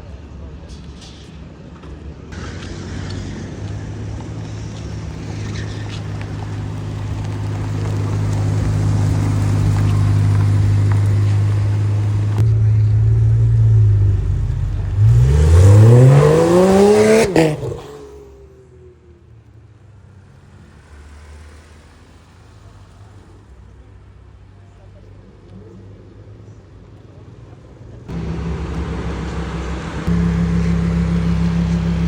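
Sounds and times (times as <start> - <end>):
car engine revving: 2.4 - 18.7, 28.1 - 32.0.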